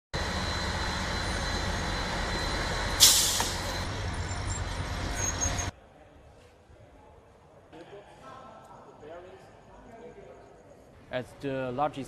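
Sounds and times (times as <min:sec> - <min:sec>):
diesel train running: 0:00.2 - 0:05.7.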